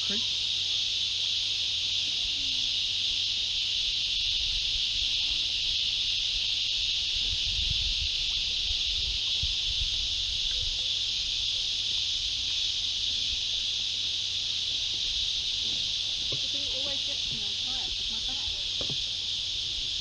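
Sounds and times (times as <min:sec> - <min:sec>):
high-pitched insect chorus: 0:00.0 - 0:20.0
low irregular rumble: 0:12.8 - 0:20.0.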